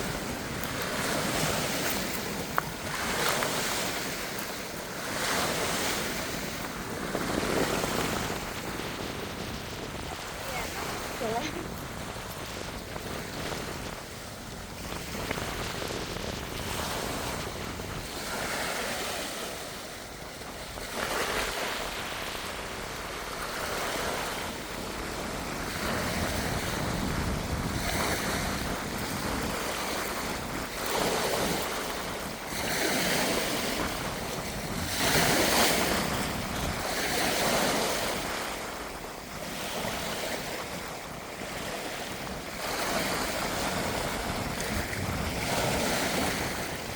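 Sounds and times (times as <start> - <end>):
strong gusty wind: 0.0 - 46.9
wind buffeting microphone: 0.0 - 46.9.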